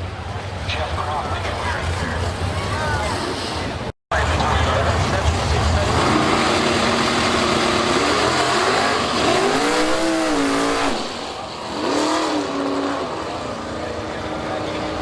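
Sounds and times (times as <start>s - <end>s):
background engine noise: 0.0s - 15.0s
racing car engine revving: 4.2s - 15.0s.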